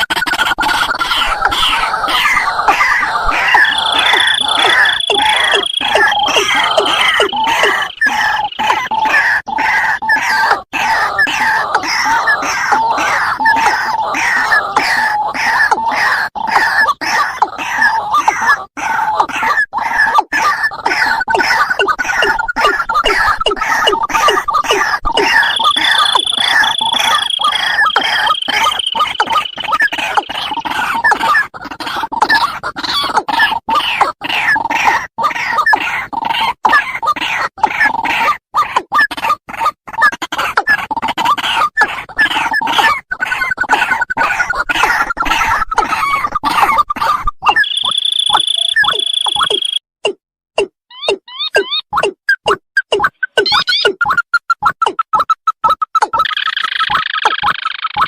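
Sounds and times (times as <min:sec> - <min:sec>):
waterhen calls: 0:00.4 - 0:16.6, 0:20.7 - 0:31.3, 0:43.7 - 0:49.8, 0:53.1 - 0:54.0
rail bird calls sliding downward: 0:01.6 - 0:08.7, 0:25.1 - 0:29.9
high whistle-like tone: 0:03.4 - 0:07.8, 0:25.3 - 0:29.4.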